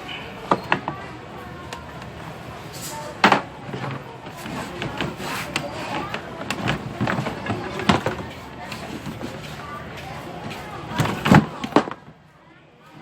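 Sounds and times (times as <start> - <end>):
objects being handled: 1.8 - 12.1.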